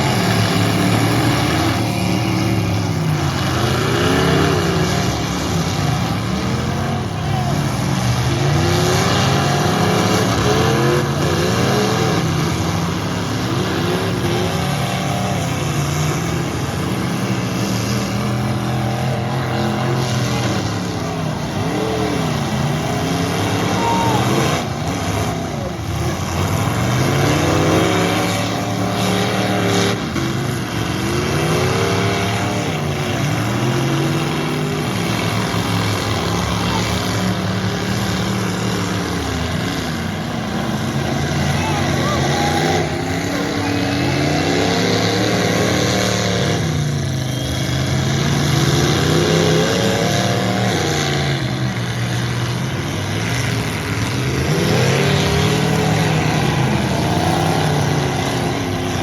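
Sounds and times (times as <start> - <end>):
truck engines revving: 0.0 - 59.0.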